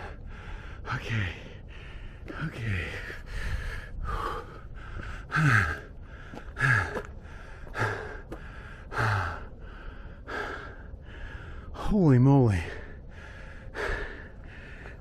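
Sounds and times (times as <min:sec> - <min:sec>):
man breathing hard: 0:00.0 - 0:11.8, 0:12.6 - 0:15.0.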